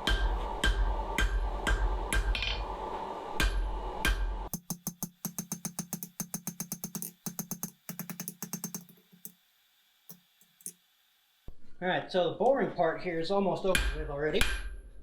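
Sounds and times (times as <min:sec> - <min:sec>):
hammer striking steel on anvil: 0:03.4 - 0:09.3.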